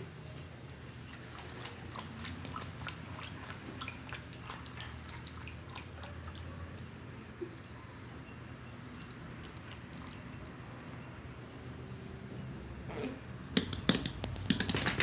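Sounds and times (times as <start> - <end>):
dog chewing and gnawing: 1.2 - 6.2.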